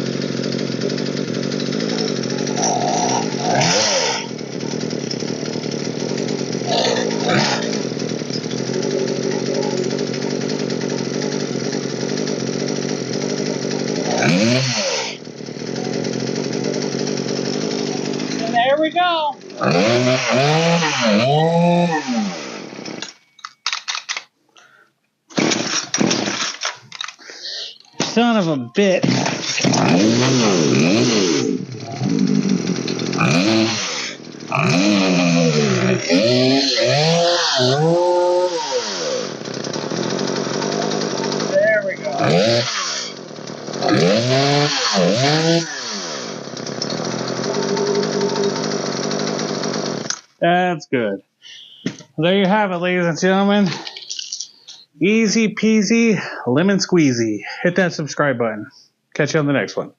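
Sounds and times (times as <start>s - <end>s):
loud rough noise: 0.0s - 23.4s, 25.3s - 50.4s
chainsaw engine revving: 0.0s - 24.3s, 25.3s - 50.4s, 53.0s - 56.3s
clicks: 22.8s - 25.0s, 25.7s - 28.2s.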